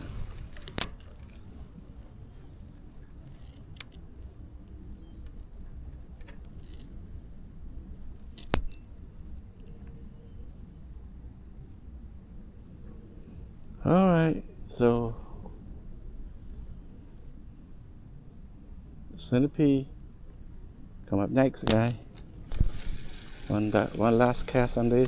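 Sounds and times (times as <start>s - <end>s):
crickets chirping: 0.0s - 25.0s
sharp clicks: 21.6s - 25.0s.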